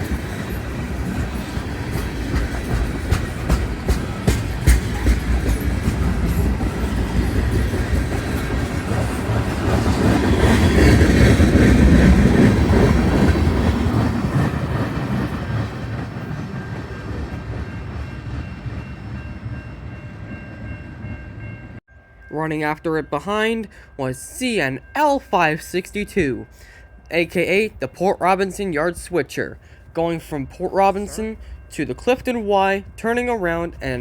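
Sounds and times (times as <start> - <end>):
wheels clicking over rail joints: 0.0 - 17.6
train passing on rails: 0.0 - 34.0.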